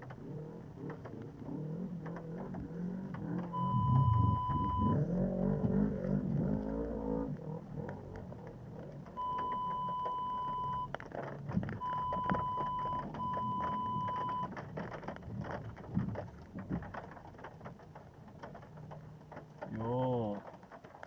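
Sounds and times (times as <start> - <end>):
faint clicks and knocks: 0.0 - 21.0
high-pitched electronic beeps: 3.6 - 5.1.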